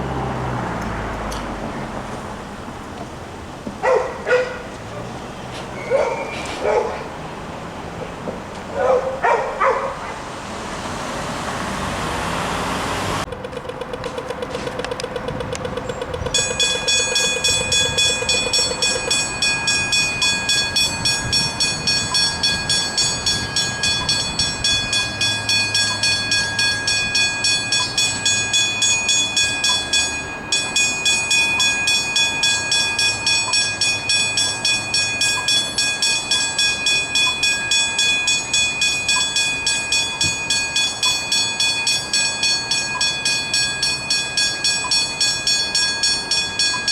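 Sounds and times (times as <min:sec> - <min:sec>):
level crossing warning bells: 0:13.2 - 0:46.9
loud bell ringing: 0:15.8 - 0:46.9.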